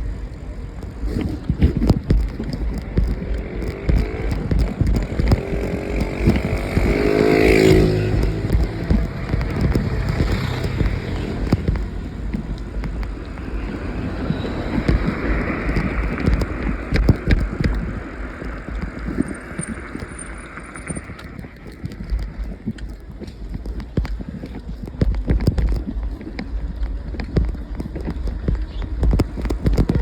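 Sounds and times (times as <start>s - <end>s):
low engine rumble: 0.0s - 23.6s
wind buffeting microphone: 0.0s - 30.0s
knocks and rattles: 0.7s - 30.0s.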